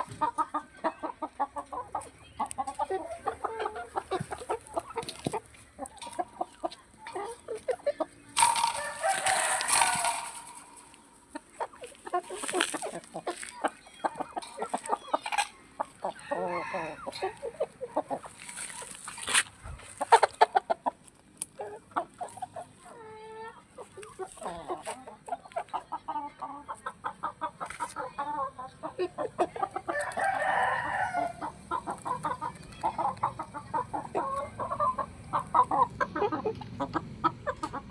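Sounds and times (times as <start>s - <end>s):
chickens clucking: 0.0s - 37.9s
rooster crowing: 8.8s - 10.6s, 16.2s - 17.4s, 29.9s - 31.4s.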